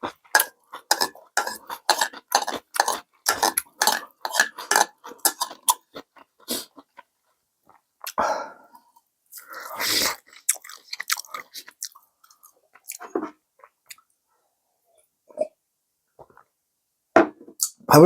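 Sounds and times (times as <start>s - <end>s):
person chewing and smacking: 0.0s - 8.2s, 9.4s - 14.1s.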